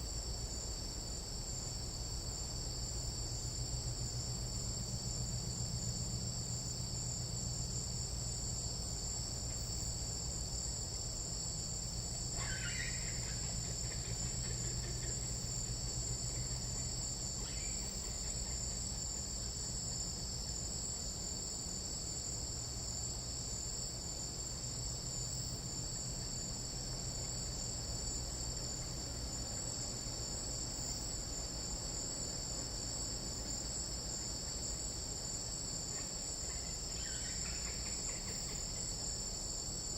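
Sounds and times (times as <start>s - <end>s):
insects trilling: 0.0s - 39.9s
animal call: 12.4s - 13.4s.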